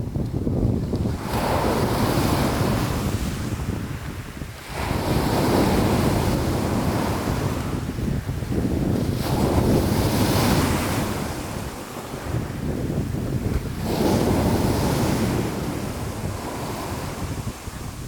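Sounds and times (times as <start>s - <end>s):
waves breaking and washing in: 0.0s - 18.0s.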